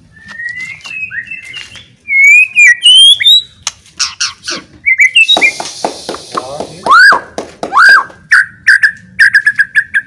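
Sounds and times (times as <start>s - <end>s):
bird singing whistled phrases: 0.0s - 3.6s, 4.8s - 5.6s, 8.3s - 10.0s.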